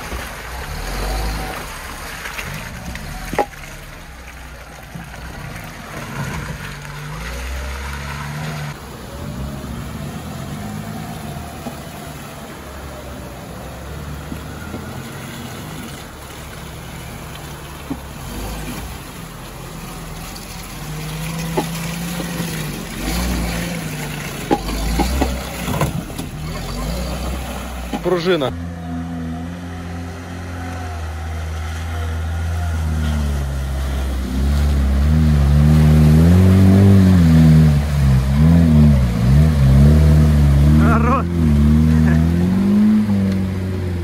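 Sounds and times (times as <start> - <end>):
car engine revving: 20.7 - 44.0.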